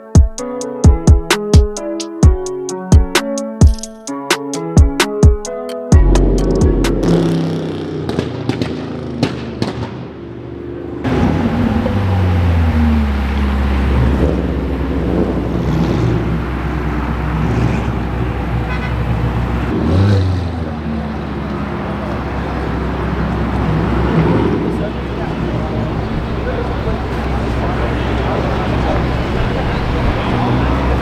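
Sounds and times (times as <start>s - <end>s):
music with drum hits: 0.1s - 7.4s
car engines running: 6.0s - 9.3s, 11.0s - 31.0s
traffic noise: 6.0s - 31.0s.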